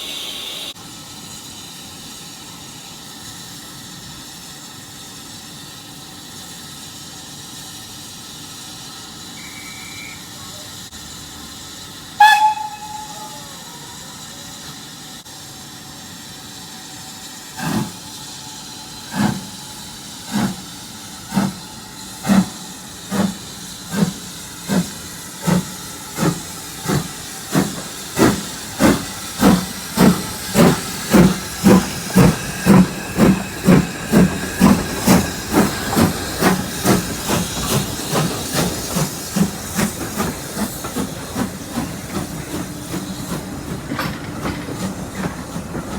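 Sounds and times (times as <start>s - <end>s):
steam hissing: 0.0s - 45.9s
locomotive exhaust chuffs: 7.4s - 14.2s, 14.8s - 45.9s
steam locomotive whistle: 9.3s - 11.0s, 12.1s - 14.6s.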